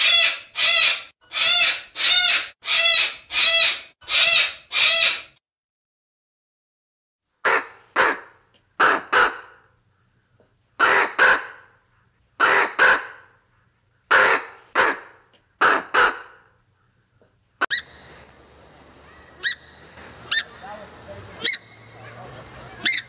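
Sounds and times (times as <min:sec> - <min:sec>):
low steady background noise: 0:07.3 - 0:23.0
crow cawing: 0:07.4 - 0:11.8, 0:12.4 - 0:13.3, 0:14.1 - 0:17.1, 0:19.0 - 0:20.7.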